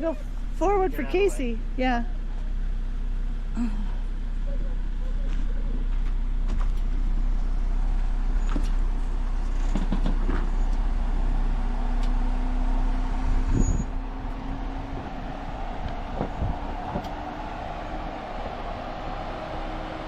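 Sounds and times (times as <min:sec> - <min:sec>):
vehicle engine running: 0:00.0 - 0:20.0
knocks and clatter from suspension: 0:05.2 - 0:07.1, 0:08.4 - 0:10.8.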